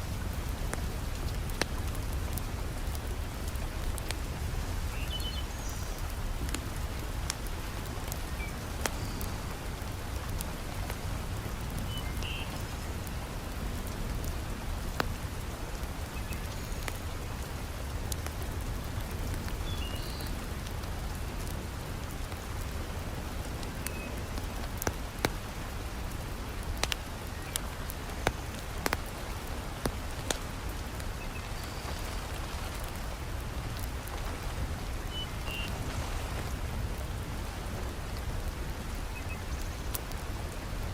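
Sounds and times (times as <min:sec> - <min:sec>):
heavy rain falling: 0:00.0 - 0:40.9
wood fire crackling and popping: 0:06.0 - 0:12.2, 0:20.6 - 0:31.2.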